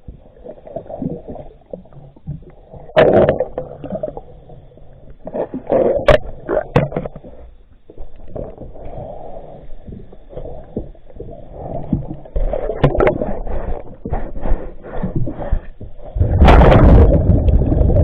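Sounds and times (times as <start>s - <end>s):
muffled underwater water wash: 0.0s - 18.0s
clicks and bubbling: 0.6s - 4.3s, 11.9s - 13.3s, 16.1s - 18.0s.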